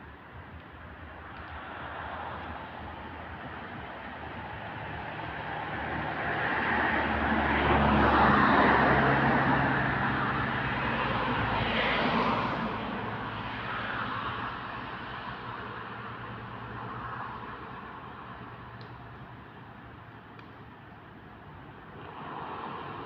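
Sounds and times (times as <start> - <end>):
vehicle passing by: 4.7 - 14.2.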